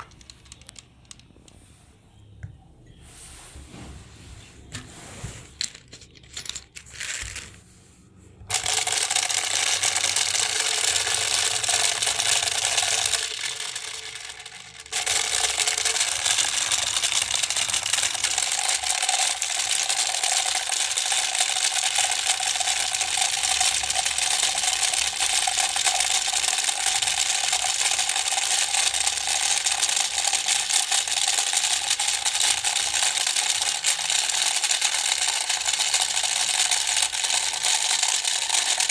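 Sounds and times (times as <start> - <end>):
electric toy motor rattling and whining: 8.5 - 38.9.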